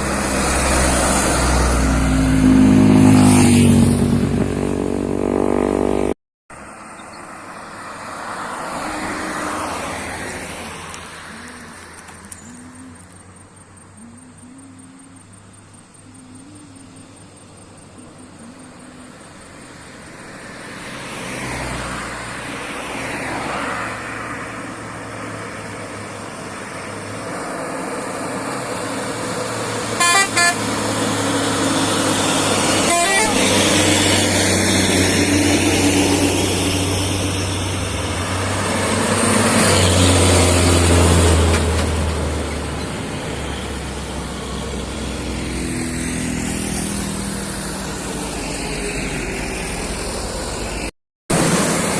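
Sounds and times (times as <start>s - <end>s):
heavy vehicle traffic: 0.0s - 51.9s
vehicle horn toots: 30.0s - 30.7s, 32.6s - 34.0s.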